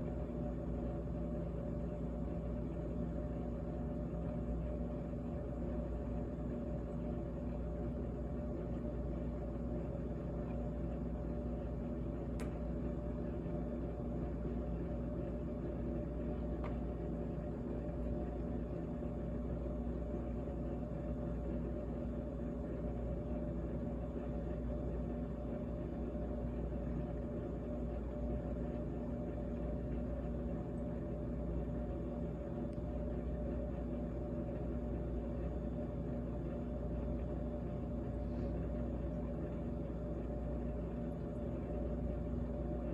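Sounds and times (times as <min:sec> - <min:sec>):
refrigerator humming: 0:00.0 - 0:42.9
faint click: 0:12.3 - 0:12.6.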